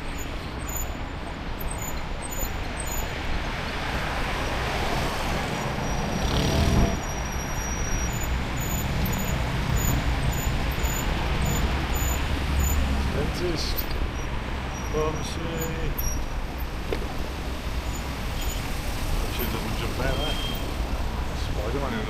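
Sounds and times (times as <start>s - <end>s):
road traffic: 0.0s - 22.0s
wind rumble: 3.4s - 13.1s
vehicle passing: 3.8s - 13.4s.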